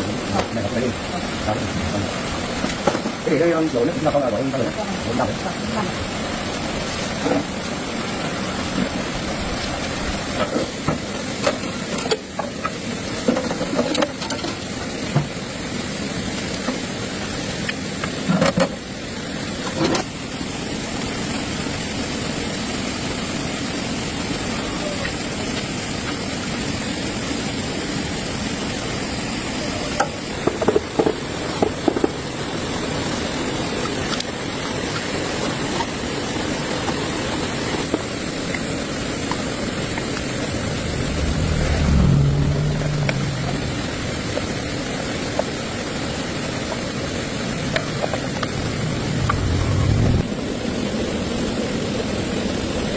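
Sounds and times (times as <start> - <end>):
tractor engine running: 38.3 - 50.2.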